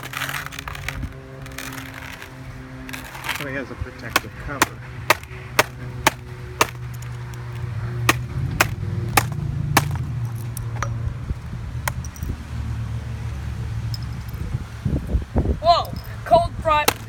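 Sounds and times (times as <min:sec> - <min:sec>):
hammer striking laptop: 0:04.1 - 0:06.8, 0:08.1 - 0:10.0.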